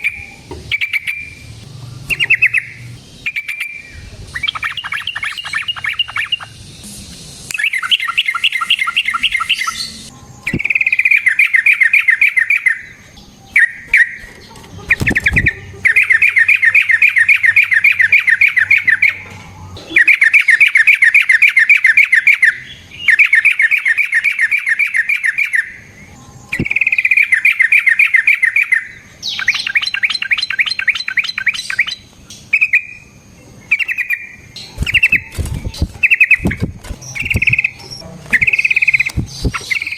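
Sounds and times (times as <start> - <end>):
bird singing rolling trills: 0.0 - 39.9.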